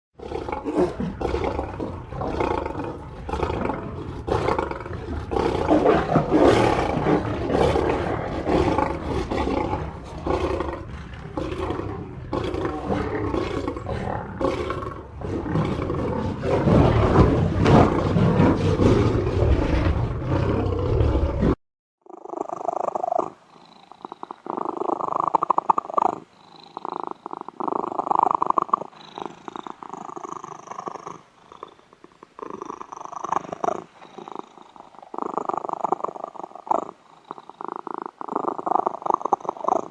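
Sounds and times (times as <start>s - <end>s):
big cat roaring and growling: 0.2s - 21.6s.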